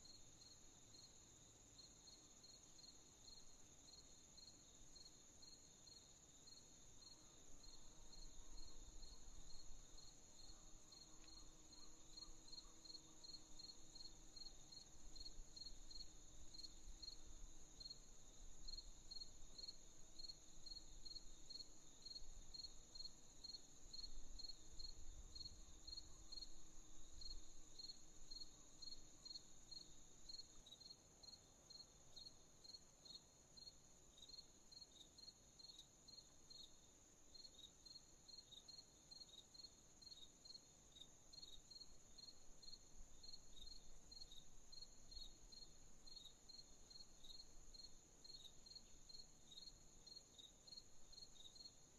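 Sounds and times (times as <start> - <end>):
crickets chirping: 0.0 - 51.9
second chirping insect: 1.8 - 51.8.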